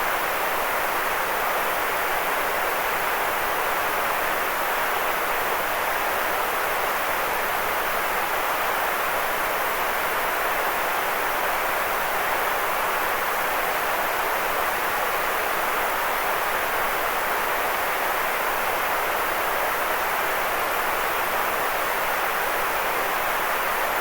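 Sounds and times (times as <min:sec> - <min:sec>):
white noise hiss: 0:00.0 - 0:24.0.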